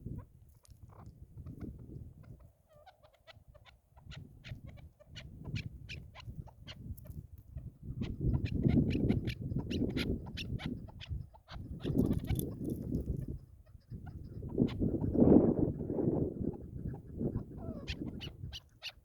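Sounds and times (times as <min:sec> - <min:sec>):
low wind rumble: 0:00.0 - 0:02.6, 0:03.4 - 0:18.8.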